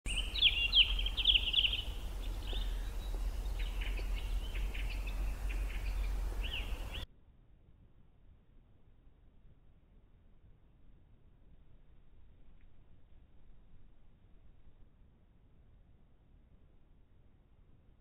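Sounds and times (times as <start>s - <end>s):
small birds chirping: 0.1s - 7.0s
steady low rumble: 0.1s - 7.0s.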